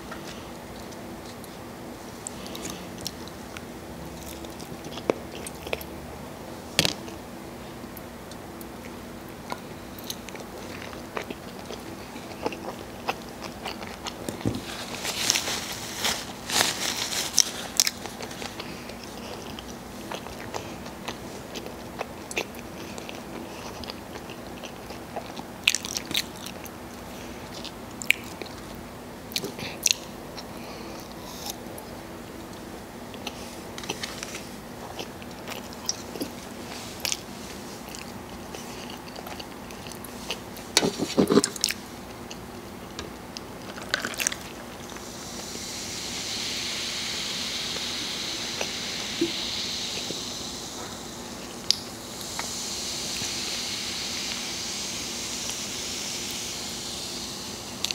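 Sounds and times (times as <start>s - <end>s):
faint steady hum: 0.0s - 57.9s
chewing with wet mouth sounds: 2.2s - 6.0s, 7.9s - 16.5s, 17.3s - 45.5s.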